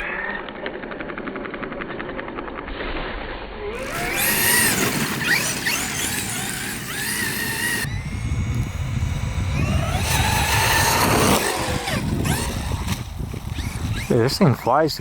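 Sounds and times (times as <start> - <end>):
electric rc car motor whining: 3.7 - 15.0
tyres on rough ground: 3.8 - 15.0.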